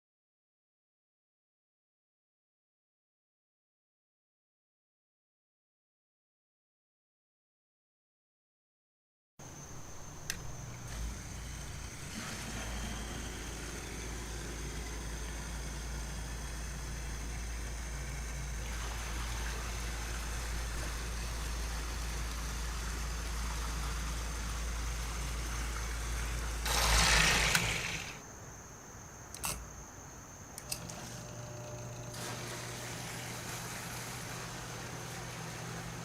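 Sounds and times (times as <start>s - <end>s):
sump pump motor hum: 9.5s - 28.2s, 30.5s - 36.0s
rushing water: 16.8s - 28.0s
water splashing: 18.5s - 24.4s.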